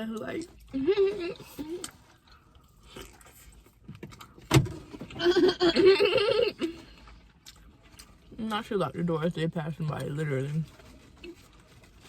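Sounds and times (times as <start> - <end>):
person laughing: 5.2 - 6.8.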